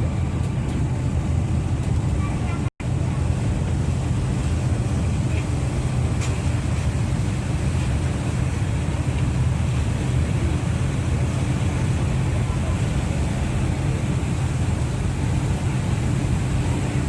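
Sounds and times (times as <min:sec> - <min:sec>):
ferry engines droning: 0:00.0 - 0:17.0.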